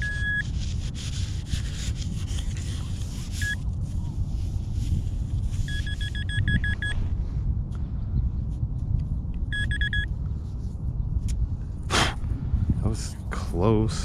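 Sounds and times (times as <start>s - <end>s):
metal detector beeps: 0.0s - 0.5s, 3.4s - 3.6s, 5.6s - 7.0s, 9.5s - 10.1s
wind rumble on microphone: 0.0s - 14.0s.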